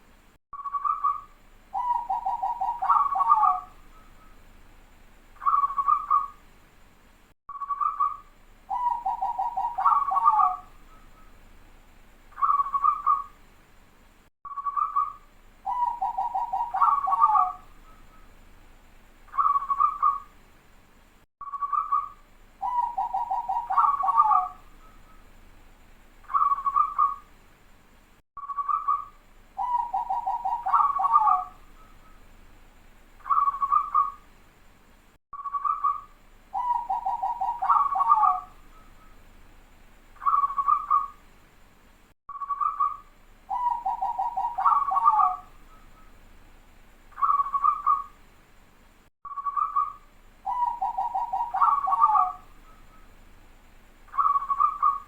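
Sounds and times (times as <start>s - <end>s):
dove cooing with rattling trill: 1.8s - 3.8s, 8.7s - 10.7s, 15.7s - 17.7s, 22.6s - 24.6s, 29.6s - 31.6s, 36.6s - 38.6s, 42.6s - 45.5s, 50.5s - 52.5s.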